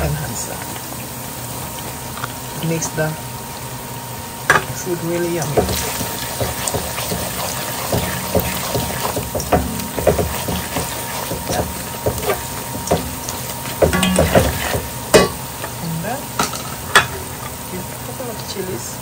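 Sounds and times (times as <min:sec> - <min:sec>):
onions sizzling in hot oil: 0:00.0 - 0:19.0
spoon scraping and knocking pot: 0:05.4 - 0:15.4.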